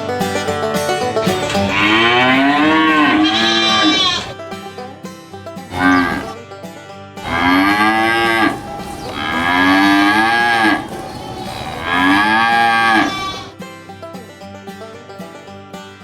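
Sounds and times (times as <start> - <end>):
cattle mooing: 1.6 - 4.4, 5.7 - 6.4, 7.2 - 13.5.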